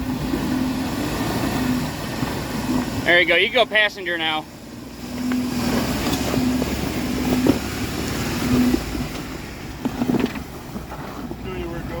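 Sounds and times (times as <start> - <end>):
car engine under load: 0.0 - 12.0.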